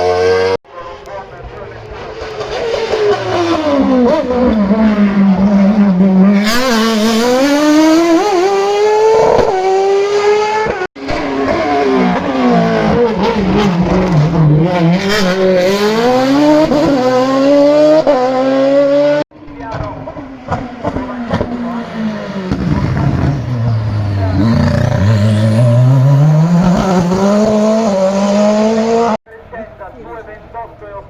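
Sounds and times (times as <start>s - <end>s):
race car engine revving: 1.8s - 19.2s, 19.8s - 29.2s.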